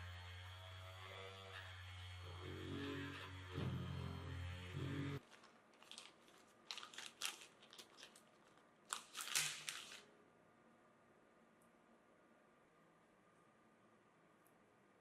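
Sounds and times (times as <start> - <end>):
crinkling and rustling: 5.2 - 10.1.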